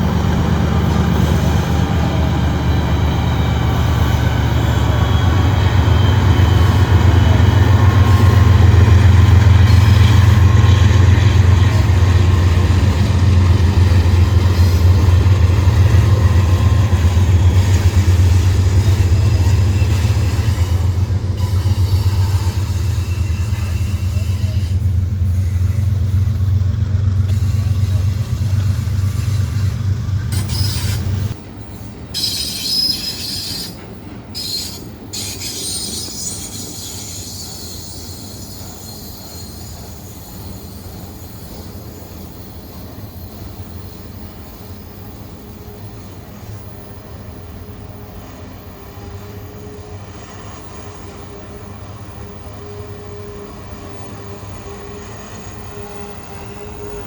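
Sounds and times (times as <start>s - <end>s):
locomotive drone: 0.0s - 57.0s
train cars rumbling by: 0.0s - 57.0s
metallic wheel squeal: 1.0s - 26.6s, 27.3s - 46.2s.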